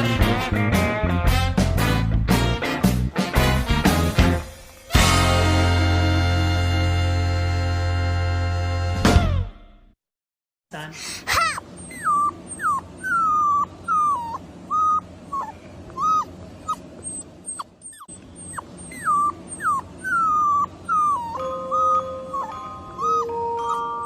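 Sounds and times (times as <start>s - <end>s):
puppy whimpering: 11.3s - 24.0s.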